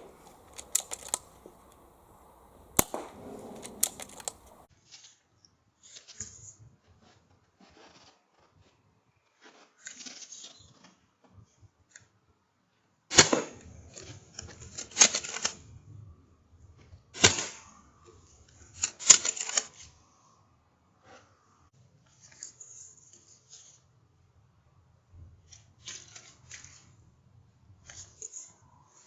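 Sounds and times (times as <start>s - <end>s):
air rifle shots: 0.0s - 4.7s
faint clicking: 0.0s - 4.7s.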